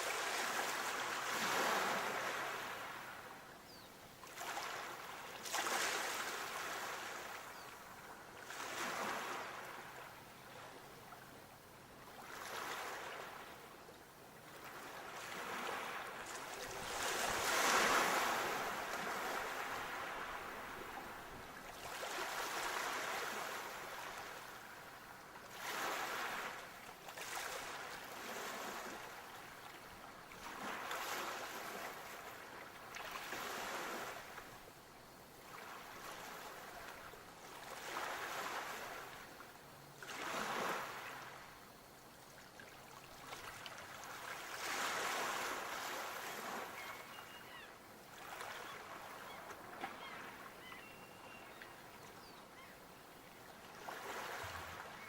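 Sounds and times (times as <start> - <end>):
sea waves breaking on shore: 0.0 - 3.4, 4.2 - 11.2, 12.1 - 13.8, 14.4 - 34.6, 35.4 - 41.5, 42.5 - 51.8, 52.6 - 55.0.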